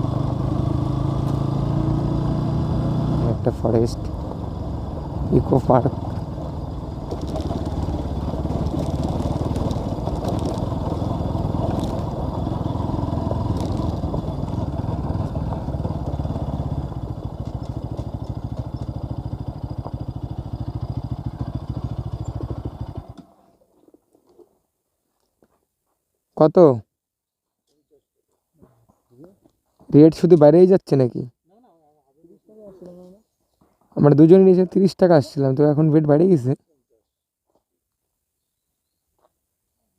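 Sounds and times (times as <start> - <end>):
motorcycle engine running: 0.0 - 23.4.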